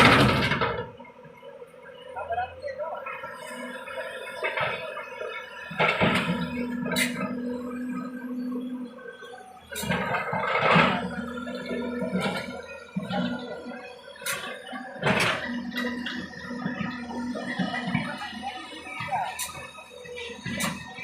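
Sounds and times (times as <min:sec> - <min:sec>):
diesel engine humming: 0:00.0 - 0:21.0.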